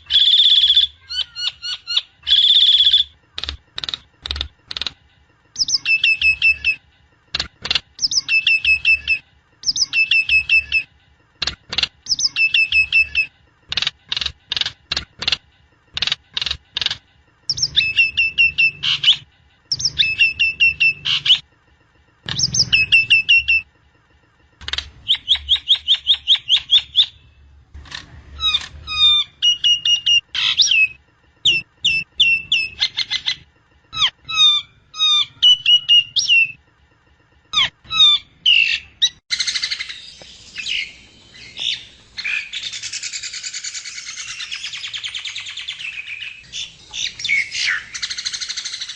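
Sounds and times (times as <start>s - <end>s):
myna chirps and whistles: 0.0s - 3.2s, 5.6s - 6.8s, 17.5s - 21.4s, 25.0s - 27.2s, 28.4s - 36.6s, 37.6s - 48.9s
harsh raspy bird calls: 37.5s - 48.9s.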